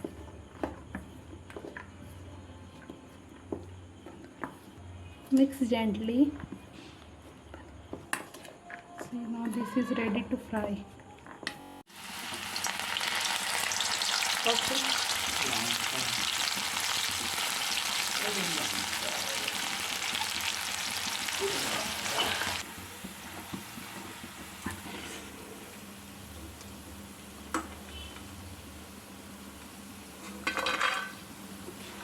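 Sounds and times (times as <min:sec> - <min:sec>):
corn frying in hot oil: 0:11.9 - 0:32.0.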